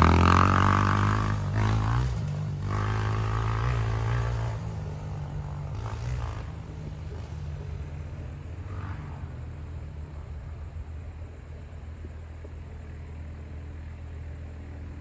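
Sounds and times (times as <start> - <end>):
dirt bike engine revving: 0.0 - 9.6.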